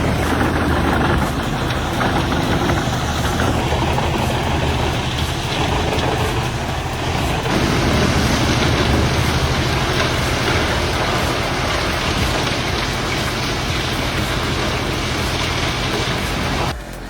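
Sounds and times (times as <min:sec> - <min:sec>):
heavy machine engine running: 0:00.0 - 0:17.0.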